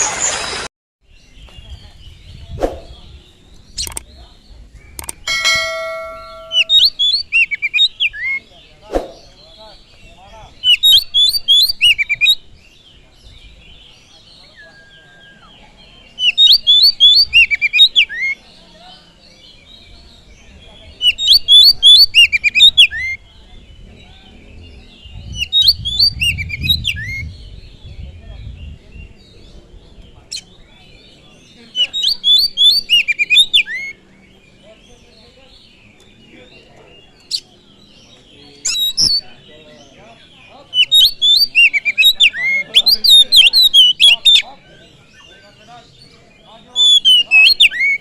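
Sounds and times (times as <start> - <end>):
bird singing whistled notes: 1.1 - 36.0, 37.1 - 44.4, 45.0 - 48.0
soft bird chattering: 2.4 - 12.4, 40.5 - 45.8
sharp clicks: 3.8 - 4.1, 4.9 - 5.3
bell-like chime: 5.3 - 6.8
bird singing whistled phrases: 5.7 - 8.5, 16.2 - 18.4, 31.8 - 34.0, 40.8 - 44.4, 46.8 - 48.0.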